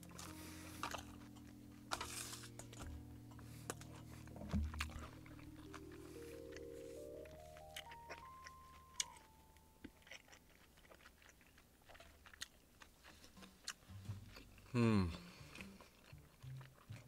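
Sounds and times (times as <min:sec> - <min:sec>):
person chewing and biting food: 0:00.0 - 0:17.0.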